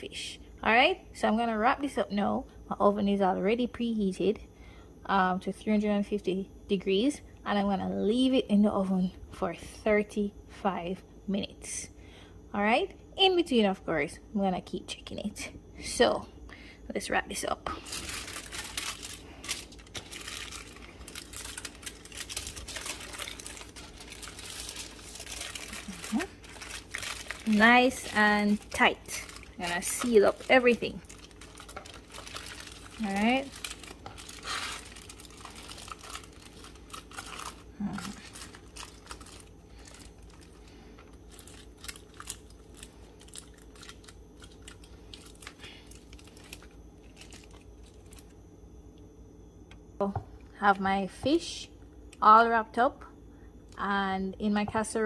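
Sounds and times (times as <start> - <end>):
aluminium foil crinkling: 17.6 - 48.4.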